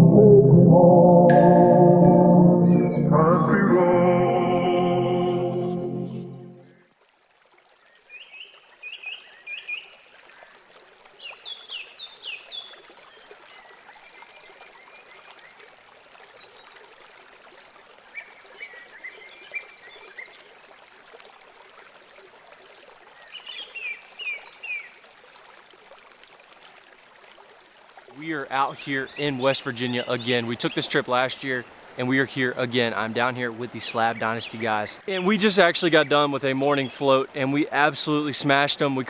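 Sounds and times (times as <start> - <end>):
songbird chirping: 0.0 - 6.8, 28.2 - 39.0.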